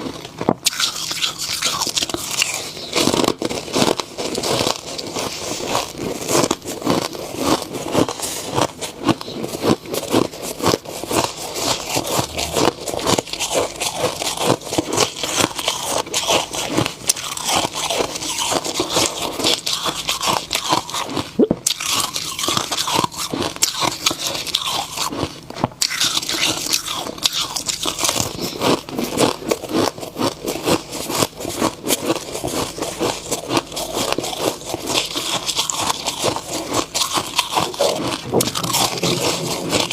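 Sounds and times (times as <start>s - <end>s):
person chewing ice crunching: 0.0s - 39.9s.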